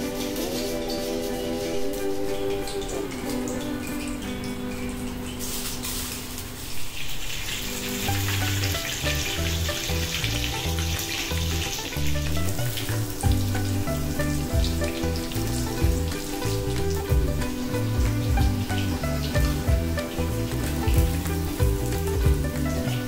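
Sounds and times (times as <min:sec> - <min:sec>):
deep-frying sizzle in hot oil: 0:00.0 - 0:23.0
background music with bass: 0:08.0 - 0:23.0.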